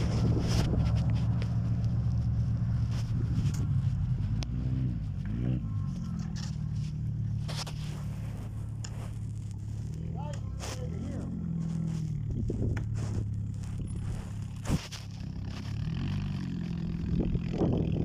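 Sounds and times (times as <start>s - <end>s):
short scrapes and clicks: 0.0s - 5.3s, 5.9s - 16.8s
engine running: 0.0s - 18.0s.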